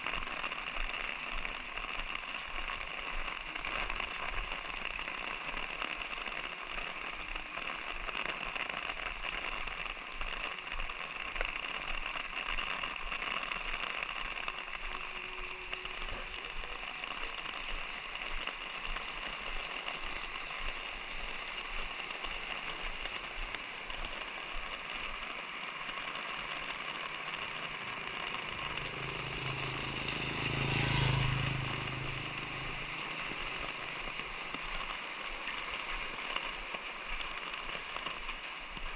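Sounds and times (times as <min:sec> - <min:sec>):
light rain pattering: 0:00.0 - 0:38.9
vehicle passing by: 0:27.3 - 0:34.5.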